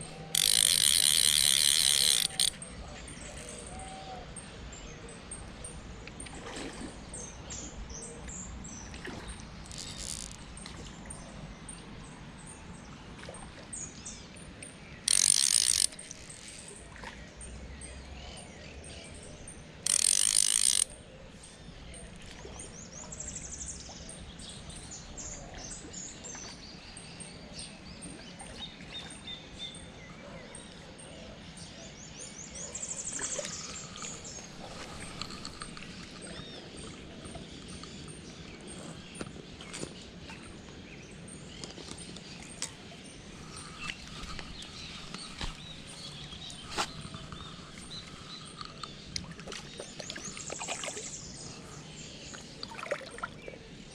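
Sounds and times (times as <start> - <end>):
ratcheting buzz: 0.0 - 2.7, 9.7 - 10.4, 15.0 - 16.7, 19.8 - 21.0
birds chirping: 0.0 - 5.8, 28.7 - 53.9.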